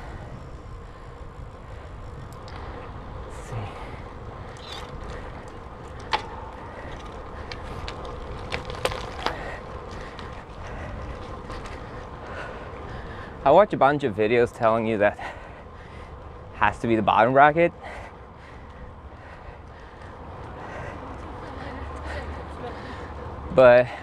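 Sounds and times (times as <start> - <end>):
bicycle drivetrain hum: 0.0 - 24.0.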